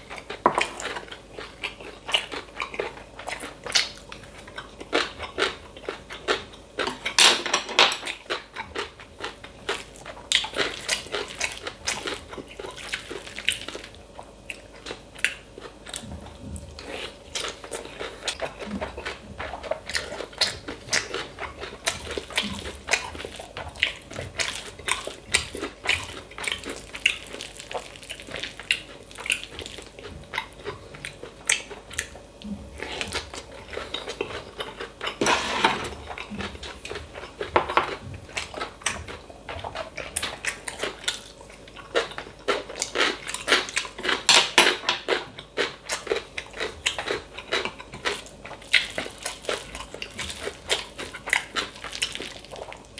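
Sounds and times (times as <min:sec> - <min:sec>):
chewing: 0:00.0 - 0:07.2, 0:07.9 - 0:52.9
spoon scraping a bowl: 0:35.2 - 0:36.0.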